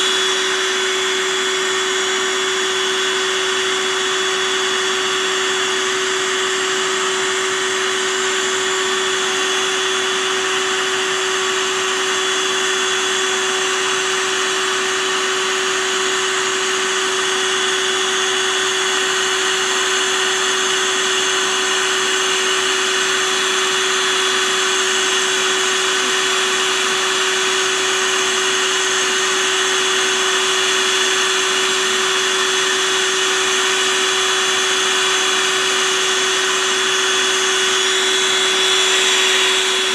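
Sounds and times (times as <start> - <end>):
small motor whirring: 32.3 - 39.9.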